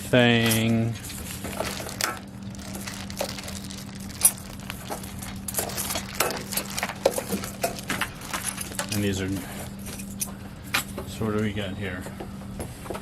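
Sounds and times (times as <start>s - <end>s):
packaging crinkling: 0.4s - 9.8s
clicks and clinks of parts: 1.4s - 10.8s.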